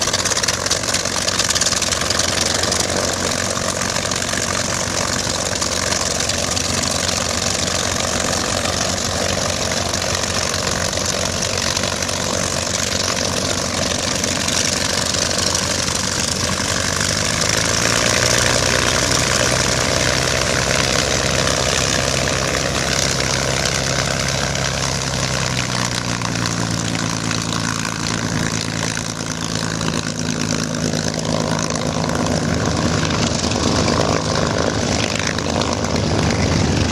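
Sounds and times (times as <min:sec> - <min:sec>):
propeller aircraft engine drone: 0:00.0 - 0:36.9.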